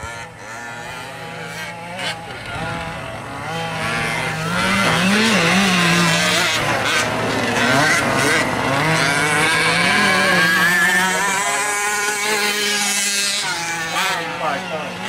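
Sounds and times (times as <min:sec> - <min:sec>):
small two-stroke engines revving: 0:00.0 - 0:15.0.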